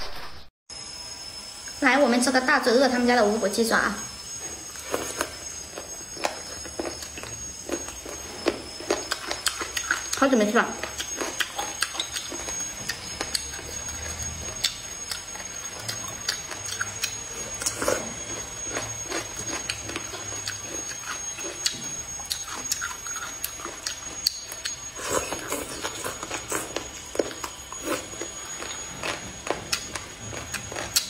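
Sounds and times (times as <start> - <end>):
wet chewing and lip-smacking: 4.5 - 31.0.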